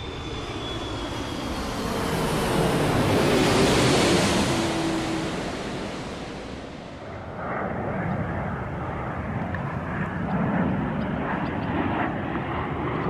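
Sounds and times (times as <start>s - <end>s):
jet engines passing with whine: 0.0s - 13.0s.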